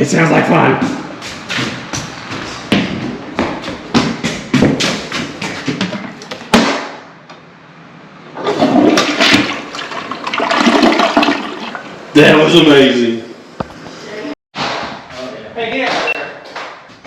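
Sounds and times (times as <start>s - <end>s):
toilet flushing: 8.3s - 12.1s.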